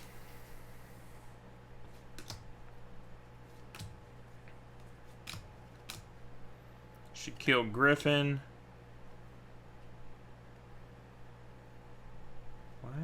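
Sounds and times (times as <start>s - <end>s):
cards clicking: 5.2s - 6.1s.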